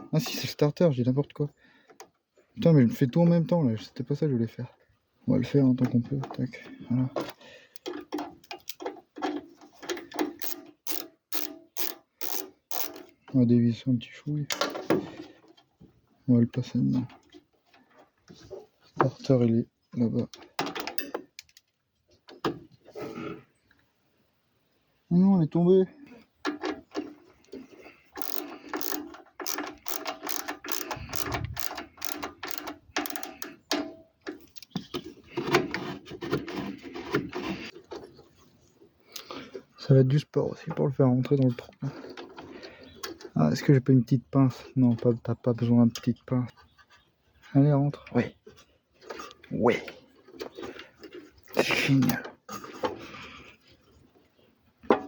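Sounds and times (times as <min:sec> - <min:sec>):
ratchet wrench clicking: 0:10.3 - 0:13.1, 0:28.2 - 0:33.6.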